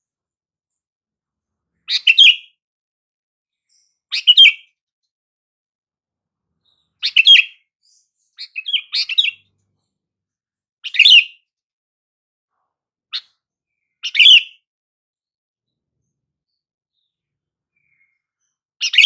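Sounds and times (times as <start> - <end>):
bird chirping calls: 1.8 - 2.6, 3.6 - 4.8, 6.6 - 10.0, 10.8 - 11.4, 13.1 - 14.6, 16.0 - 19.0.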